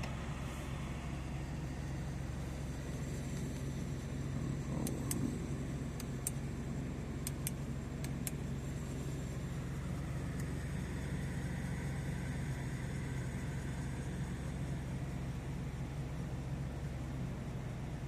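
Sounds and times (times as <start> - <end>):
car engine idling: 0.0 - 18.0
sharp clicks: 7.2 - 8.4.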